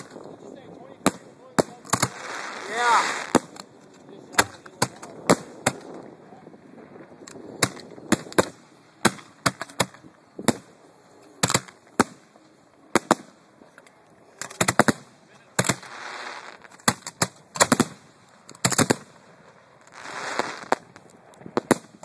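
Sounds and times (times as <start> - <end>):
fireworks bangs: 1.0 - 3.6, 4.3 - 6.1, 14.5 - 22.0.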